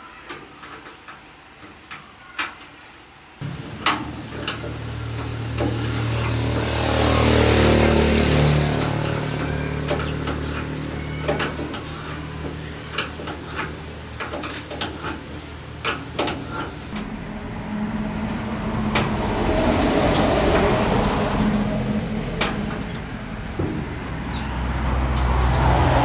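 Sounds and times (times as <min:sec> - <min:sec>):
sharp metallic clicks and knocks: 0:03.4 - 0:17.2
engine running: 0:03.4 - 0:26.0.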